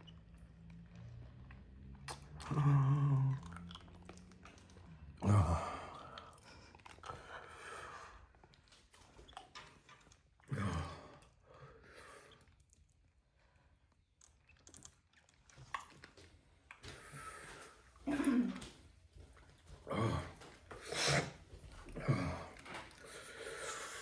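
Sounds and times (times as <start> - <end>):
person chewing: 1.5 - 5.2, 6.0 - 7.2, 14.0 - 17.6
person humming groan: 2.4 - 3.5.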